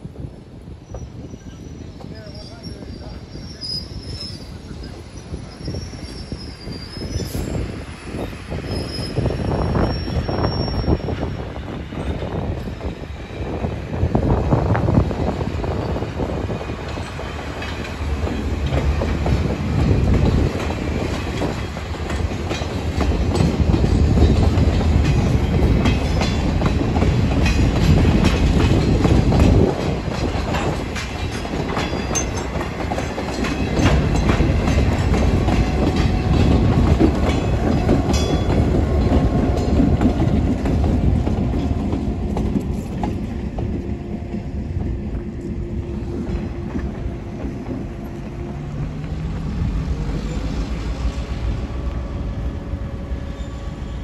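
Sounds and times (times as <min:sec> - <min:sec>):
railroad cars rumbling past: 0:00.0 - 0:54.0
wheels clicking over rail joints: 0:16.8 - 0:43.8.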